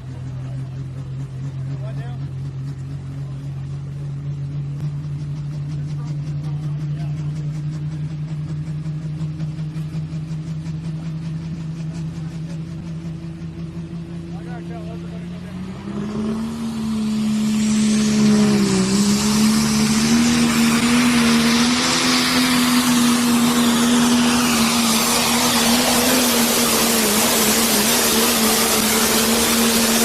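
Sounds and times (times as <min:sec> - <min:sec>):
diesel engine at full power: 0:00.0 - 0:30.0.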